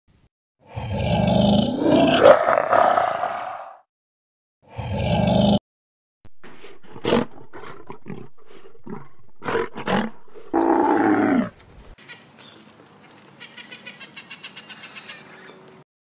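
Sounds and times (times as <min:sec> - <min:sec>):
lion grunting roars: 0:00.7 - 0:03.8, 0:04.7 - 0:05.6, 0:06.4 - 0:11.6.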